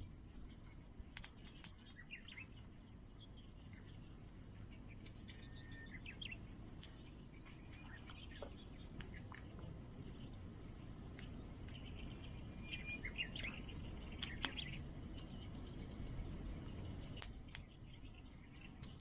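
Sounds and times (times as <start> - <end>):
sharp clicks: 1.2 - 1.8, 17.2 - 17.7.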